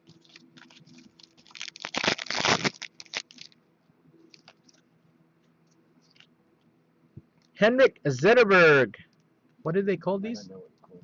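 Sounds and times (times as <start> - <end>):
cards and packaging crinkling: 0.0 - 3.6, 4.2 - 4.8.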